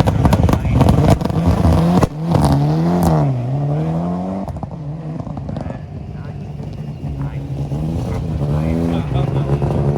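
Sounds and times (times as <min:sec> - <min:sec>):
exhaust pops and crackles: 0:00.0 - 0:03.4, 0:04.4 - 0:07.4
rally car engine revving: 0:00.0 - 0:09.9.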